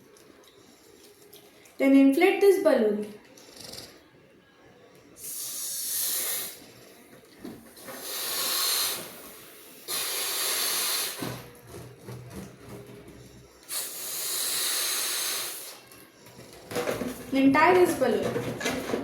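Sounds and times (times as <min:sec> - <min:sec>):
air blown into balloon: 0:05.2 - 0:06.7, 0:07.9 - 0:11.5, 0:13.7 - 0:15.9.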